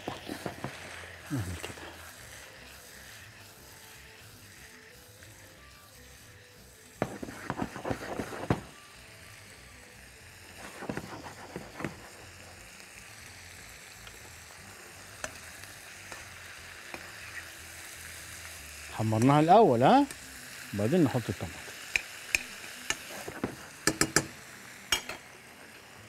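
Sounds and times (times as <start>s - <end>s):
utensil scraping a pan: 0.0s - 4.0s, 7.0s - 8.8s, 10.6s - 12.2s
meat frying in a wok: 0.0s - 26.0s.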